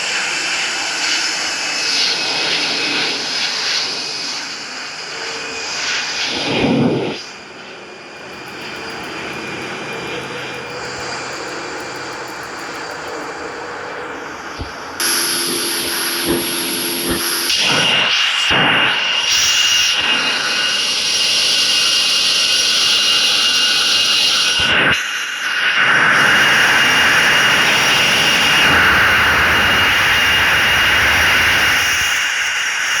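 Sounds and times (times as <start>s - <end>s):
jet engines roaring: 0.0s - 33.0s
loud hiss: 3.2s - 33.0s.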